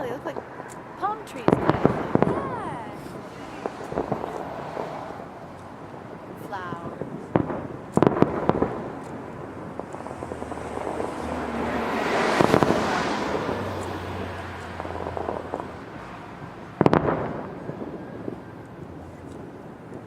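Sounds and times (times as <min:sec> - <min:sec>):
fireworks crackling: 0:00.0 - 0:20.0
loud firework bangs: 0:00.3 - 0:20.0
small firework pops: 0:03.5 - 0:04.9, 0:07.0 - 0:09.2, 0:09.8 - 0:11.4, 0:12.2 - 0:15.8, 0:16.8 - 0:20.0.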